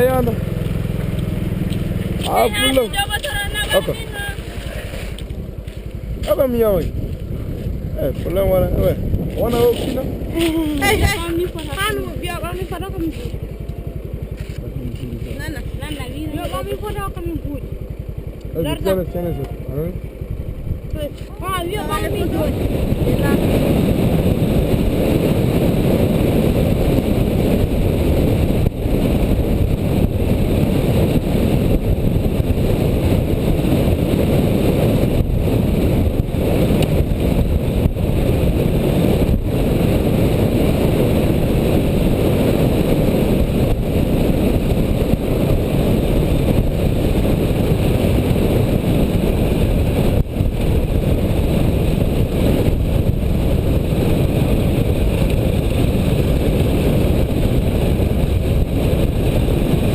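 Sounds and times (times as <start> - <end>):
motorcycle engine rumble: 0.0 - 59.9.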